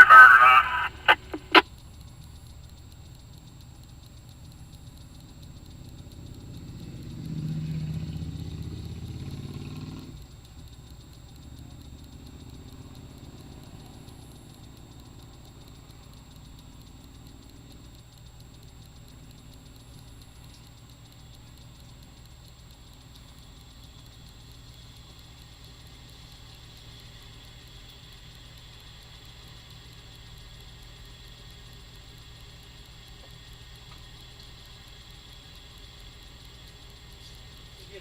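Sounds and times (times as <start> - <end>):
vehicle engine idling: 0.0 - 38.0.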